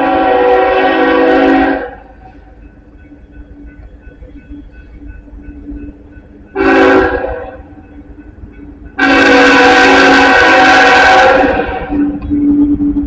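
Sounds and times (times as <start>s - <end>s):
locomotive air horn blasts: 0.0s - 2.3s, 6.5s - 7.8s, 9.0s - 13.0s
low rumble of train: 0.0s - 13.0s.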